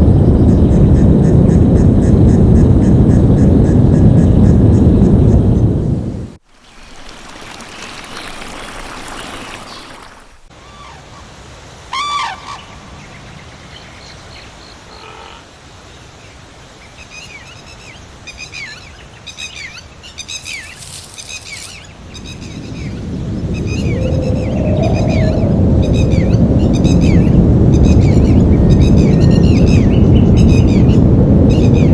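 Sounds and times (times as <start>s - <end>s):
forest ambience hiss: 6.4s - 25.3s
birds calling: 6.6s - 31.9s.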